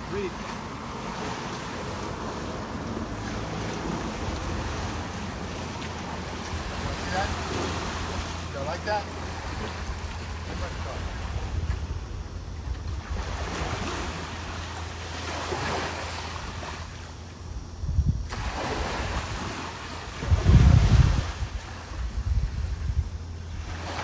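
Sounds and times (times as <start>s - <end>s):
ocean surf washing in: 0.0s - 12.2s, 13.0s - 17.0s, 18.3s - 22.9s
wind buffeting microphone: 0.0s - 24.0s.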